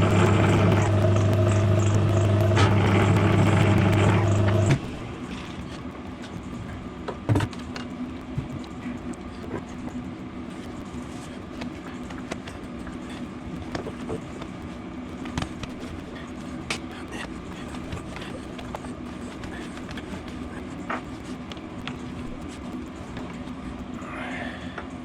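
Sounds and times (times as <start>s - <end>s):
electric motor humming: 0.0s - 5.4s.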